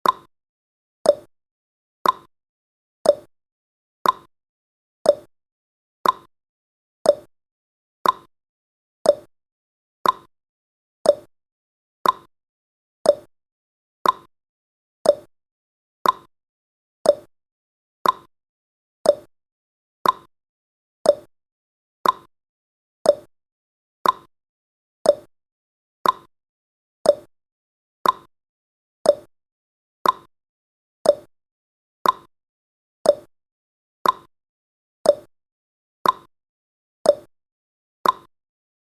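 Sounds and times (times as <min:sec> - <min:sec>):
clock-like timer ticking: 0:00.0 - 0:00.3, 0:01.1 - 0:01.3, 0:02.0 - 0:02.3, 0:03.1 - 0:03.3, 0:04.0 - 0:04.3, 0:05.1 - 0:05.3, 0:06.0 - 0:06.3, 0:07.1 - 0:07.3, 0:08.0 - 0:08.3, 0:09.1 - 0:09.3, 0:10.0 - 0:10.3, 0:11.1 - 0:11.3, 0:12.0 - 0:12.3, 0:13.1 - 0:13.3, 0:14.0 - 0:14.3, 0:15.0 - 0:15.3, 0:16.0 - 0:16.3, 0:17.0 - 0:17.3, 0:18.0 - 0:18.3, 0:19.0 - 0:19.3, 0:20.0 - 0:20.3, 0:21.0 - 0:21.3, 0:22.0 - 0:22.3, 0:23.0 - 0:23.3, 0:24.0 - 0:24.3, 0:25.0 - 0:25.3, 0:26.0 - 0:26.3, 0:27.0 - 0:27.3, 0:28.0 - 0:28.3, 0:29.0 - 0:29.3, 0:30.0 - 0:30.3, 0:31.0 - 0:31.3, 0:32.0 - 0:32.3, 0:33.0 - 0:33.3, 0:34.0 - 0:34.3, 0:35.1 - 0:35.3, 0:36.0 - 0:36.3, 0:37.1 - 0:37.3, 0:38.0 - 0:38.3.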